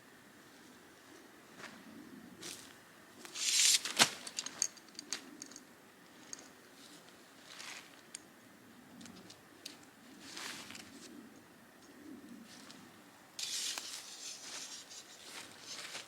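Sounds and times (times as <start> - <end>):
camping gear rustling: 6.2 - 8.1, 9.1 - 11.2, 13.4 - 16.0.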